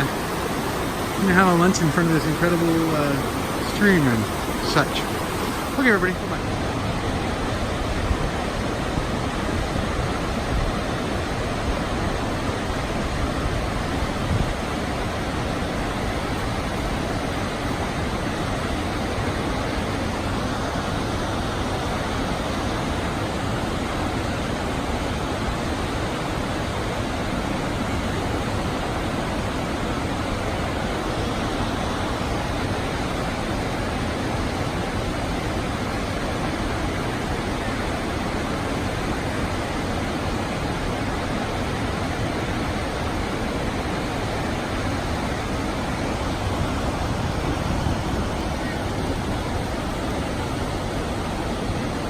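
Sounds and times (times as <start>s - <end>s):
water rushing over cascades: 0.0s - 52.0s.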